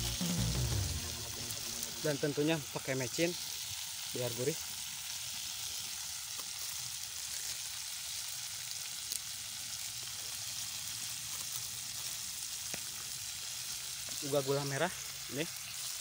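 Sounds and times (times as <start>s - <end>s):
vegetables sizzling in a metal pot: 0.0s - 16.0s.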